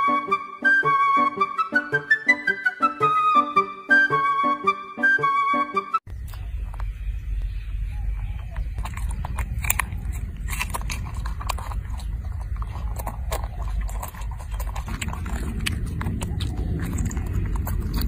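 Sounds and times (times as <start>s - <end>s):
animal chewing and crunching food: 6.1s - 18.0s
steady low rumble: 6.1s - 18.0s.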